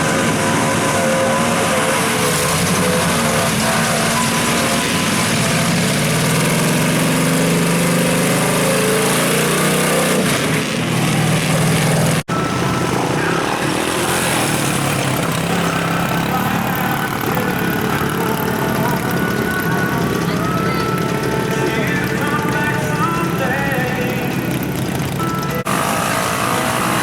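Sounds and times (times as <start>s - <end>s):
vehicle engine running hard: 0.0s - 27.0s.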